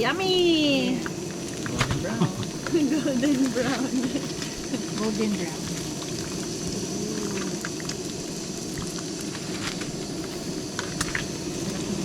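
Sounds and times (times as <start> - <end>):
fish frying in oil: 0.0 - 12.0.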